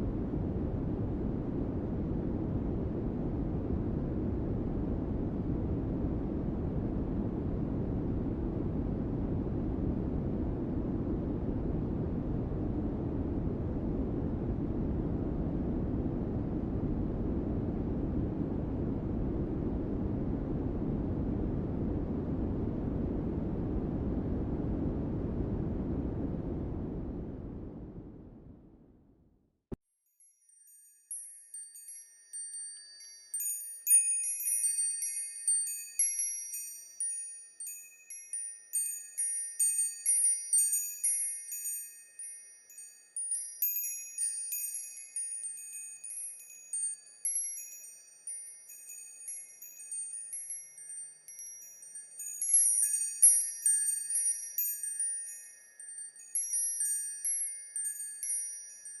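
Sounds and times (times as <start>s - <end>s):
wind chimes ringing: 30.1s - 59.0s.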